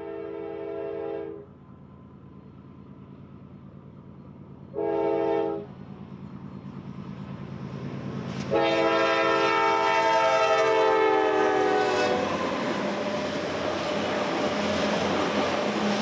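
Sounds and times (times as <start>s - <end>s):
locomotive air horn: 0.0s - 1.4s, 4.7s - 5.7s, 8.5s - 12.4s
train rolling by: 0.0s - 16.0s.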